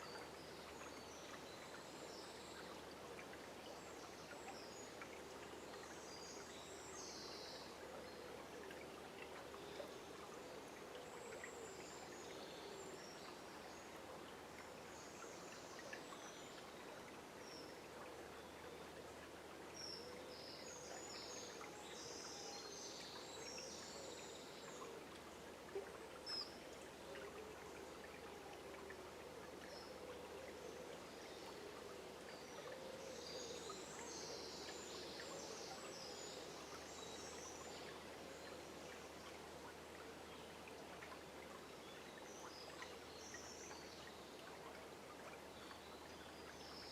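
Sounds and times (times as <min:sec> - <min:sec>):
river flowing: 0:00.0 - 0:46.9.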